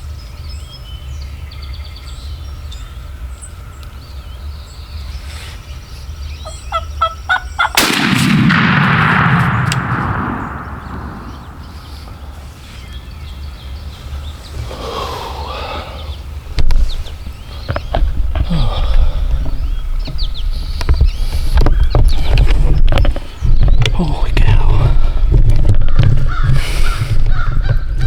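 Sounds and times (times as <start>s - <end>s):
turkey gobbling: 6.4s - 7.8s
shotgun blast with echo: 7.8s - 12.4s.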